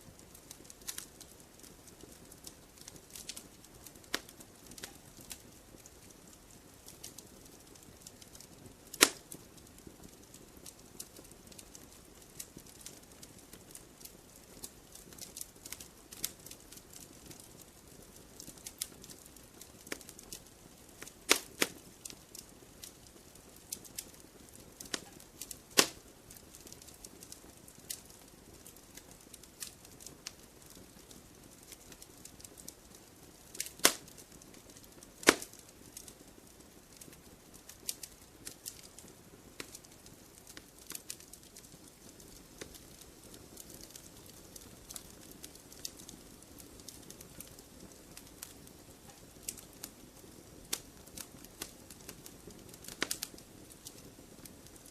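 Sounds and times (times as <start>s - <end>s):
wood fire crackling: 0.0s - 54.9s
loud pops of fire: 0.1s - 54.8s
fire hiss: 7.9s - 9.9s, 23.6s - 27.0s, 31.4s - 36.2s, 48.1s - 54.8s.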